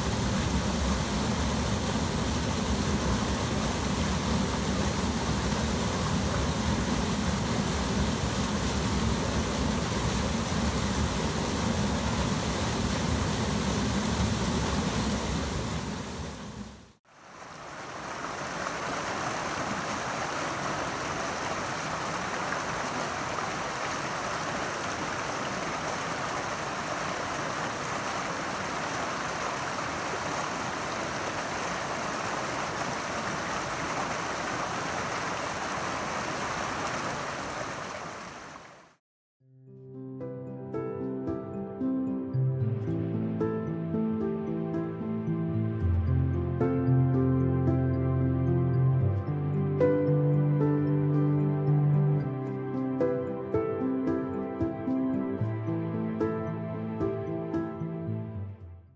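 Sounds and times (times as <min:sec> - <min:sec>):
small waterfall rushing water: 0:00.0 - 0:39.0.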